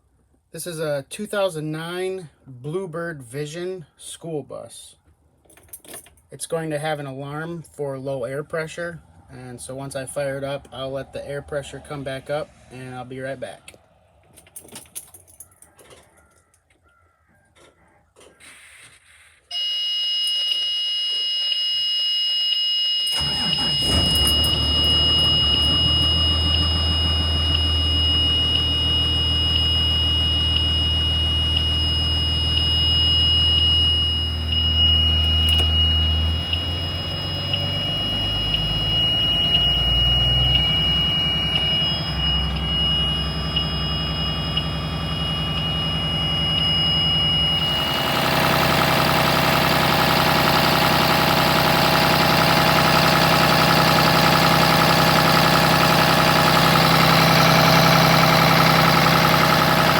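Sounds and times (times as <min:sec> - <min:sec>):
high-pitched warning buzzer: 0:19.5 - 0:50.6
diesel engine idling: 0:23.1 - 0:59.9.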